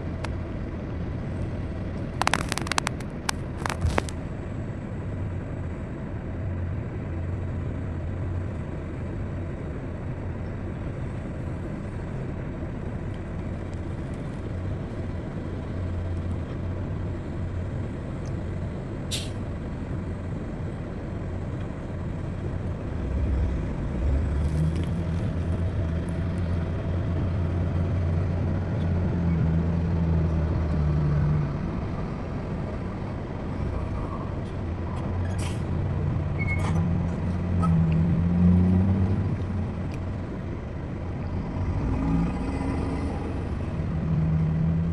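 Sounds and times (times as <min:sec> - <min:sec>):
diesel machinery rumbling: 0:00.0 - 0:44.9
short sharp hiss: 0:19.1 - 0:19.4.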